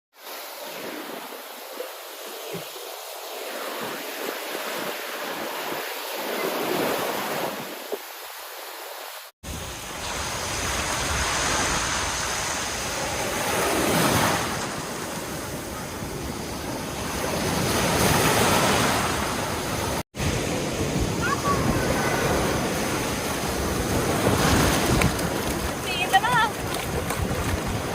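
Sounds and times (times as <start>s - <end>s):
sea waves washing onto beach: 0.2s - 27.9s
wind rumble on microphone: 20.2s - 27.9s.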